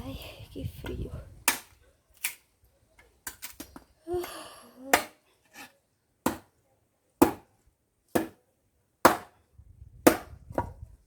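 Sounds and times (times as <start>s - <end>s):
wood being chopped: 1.4s - 2.4s, 4.9s - 5.2s, 6.2s - 6.5s, 7.2s - 7.5s, 8.1s - 8.4s, 9.0s - 9.4s, 10.0s - 10.8s.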